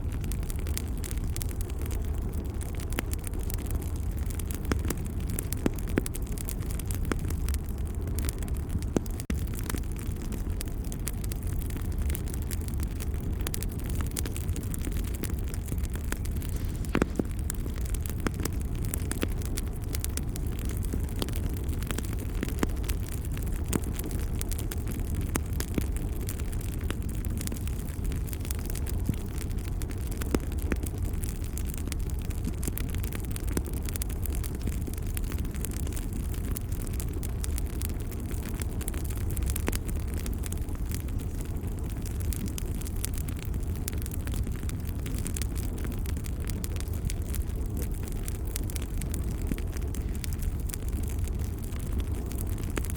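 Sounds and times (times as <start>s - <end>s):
low rumble of flames: 0.0s - 52.9s
wood fire crackling: 0.0s - 52.9s
sharp pops and snaps: 16.0s - 19.4s.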